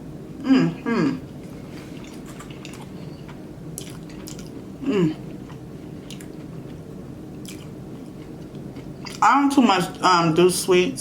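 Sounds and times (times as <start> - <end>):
person humming mm: 0.4 - 1.2, 4.8 - 5.3
person chewing food: 1.4 - 6.8, 7.4 - 9.2.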